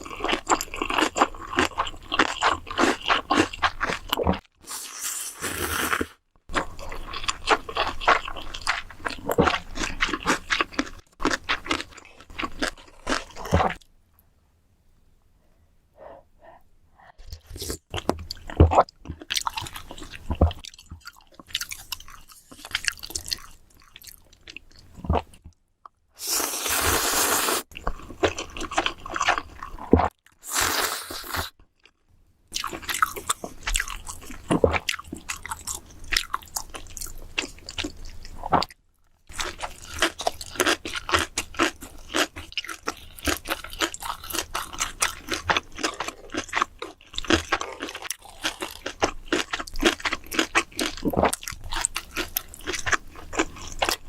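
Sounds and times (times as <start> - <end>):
wet chewing and crunchy bites: 0.0 - 13.9, 17.3 - 25.6, 27.7 - 30.4, 32.6 - 54.0
slurping noodles: 4.6 - 6.2, 26.2 - 27.7, 30.4 - 31.5.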